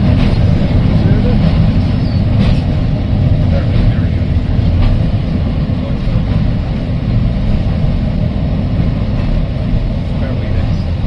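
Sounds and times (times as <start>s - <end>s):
tram wheels rumbling: 0.0s - 11.0s.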